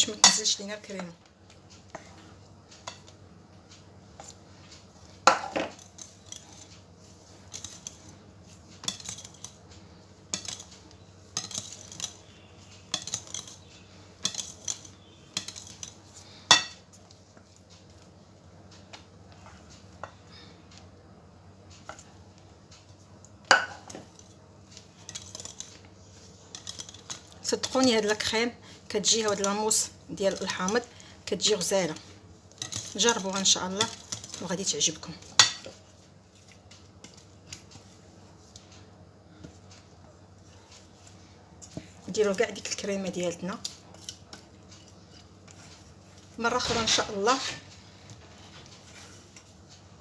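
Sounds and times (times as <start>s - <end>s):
spoon scraping mixing bowl: 10.2s - 17.5s, 23.6s - 38.6s.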